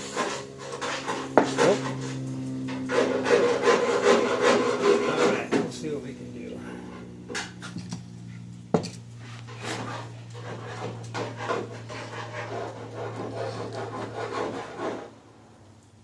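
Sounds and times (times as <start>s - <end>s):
metal pick scraping engine part: 0.0s - 8.0s
steady low hum: 0.0s - 16.0s.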